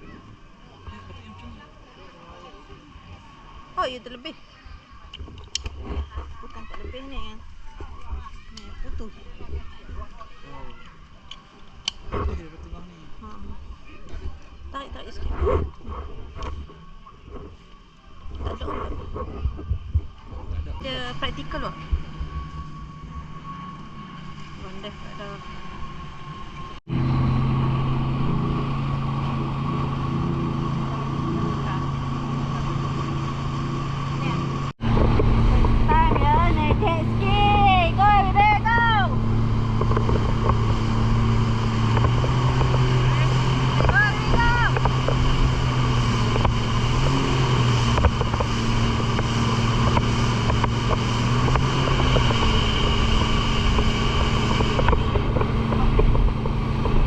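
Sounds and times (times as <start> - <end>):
jet ski engine humming: 0.0 - 57.0
wind buffeting microphone: 18.3 - 24.1, 26.8 - 57.0.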